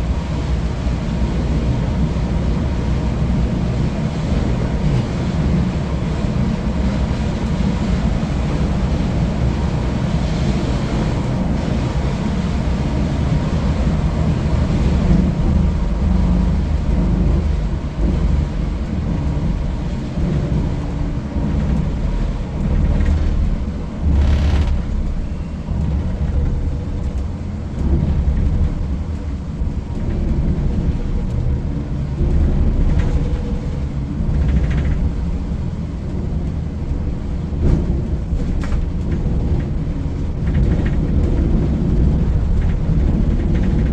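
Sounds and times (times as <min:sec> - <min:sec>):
diesel engine running: 0:00.0 - 0:36.9
road noise: 0:00.0 - 0:43.9
burst of noise with low thud: 0:24.0 - 0:25.4.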